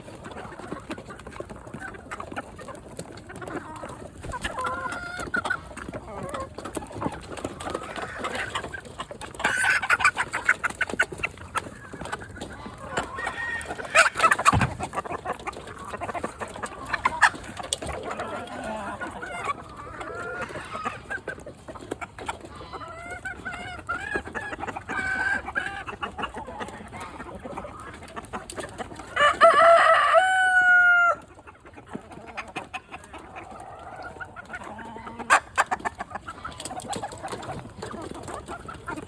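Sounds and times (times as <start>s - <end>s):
chickens clucking: 0.0s - 39.0s
rooster crowing: 29.2s - 31.2s.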